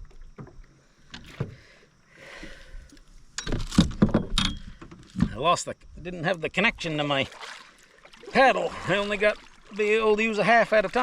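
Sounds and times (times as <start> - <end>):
paddle swishing through water: 7.2 - 11.0.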